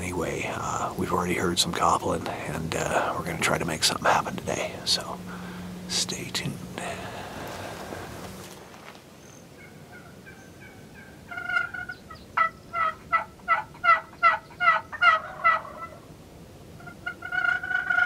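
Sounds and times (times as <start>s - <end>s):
wild turkey calling: 9.2s - 16.1s, 16.8s - 18.0s
turkey rattling call: 9.5s - 16.0s, 16.8s - 18.0s
loud turkey yelps: 9.6s - 16.0s, 16.8s - 18.0s.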